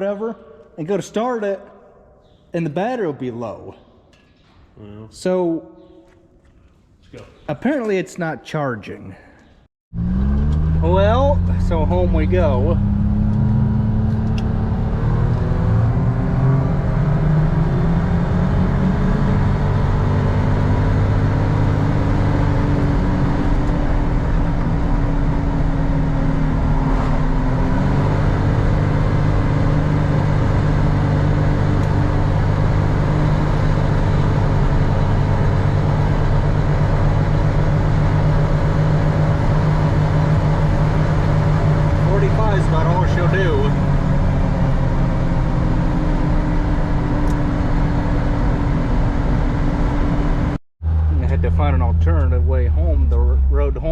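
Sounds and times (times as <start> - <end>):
tractor engine running: 19.2 - 53.9.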